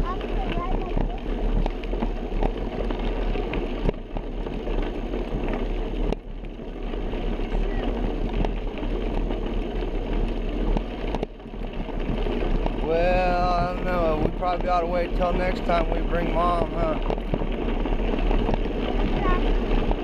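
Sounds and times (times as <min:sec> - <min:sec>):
bicycle rolling noise: 0:00.0 - 0:20.0
wind buffeting microphone: 0:00.0 - 0:20.0.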